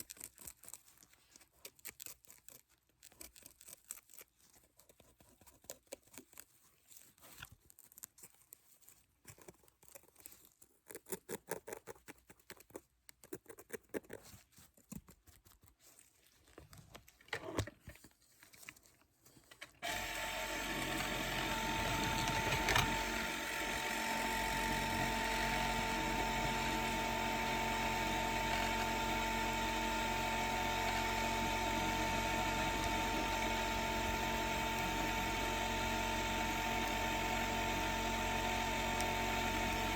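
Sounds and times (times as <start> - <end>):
dental drill whining: 19.8 - 39.9.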